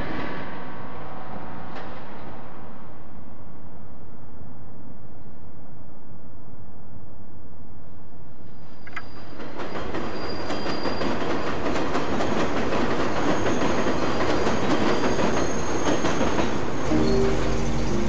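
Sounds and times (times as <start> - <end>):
train wheels clattering on track: 9.0 - 18.0
high wheel squeals: 9.8 - 11.2, 13.3 - 16.2.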